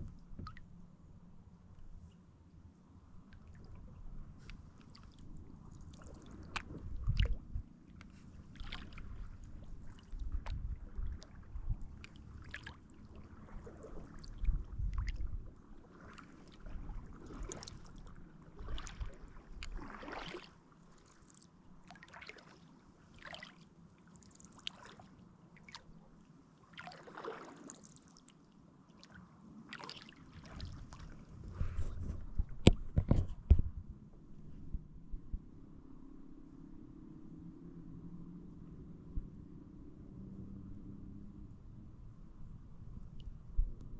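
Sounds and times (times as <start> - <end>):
water trickling off paddle: 3.3 - 15.3, 16.0 - 26.0, 26.7 - 28.3, 29.0 - 33.1
paddle splashing in water: 3.4 - 26.0, 26.7 - 28.2, 28.9 - 33.2.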